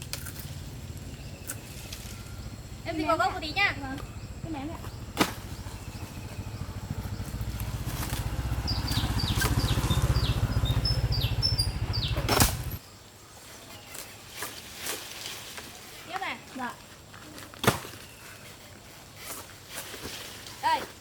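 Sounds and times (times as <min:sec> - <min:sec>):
small engine pulsing: 0:00.2 - 0:12.8
bird chirps: 0:00.9 - 0:13.0.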